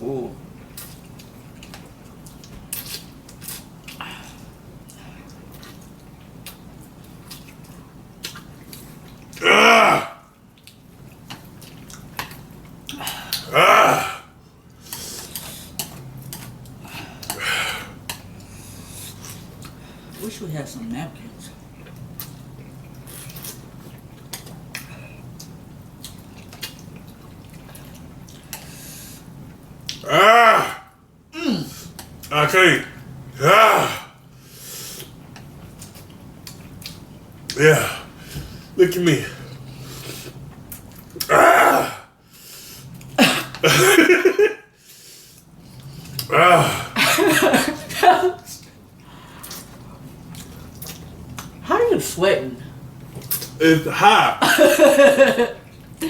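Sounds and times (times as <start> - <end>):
chewing mouth sounds: 0.6 - 9.4, 10.5 - 13.5, 14.7 - 19.8, 21.6 - 28.8, 35.0 - 37.6, 45.3 - 46.3, 48.5 - 51.6, 53.0 - 53.6.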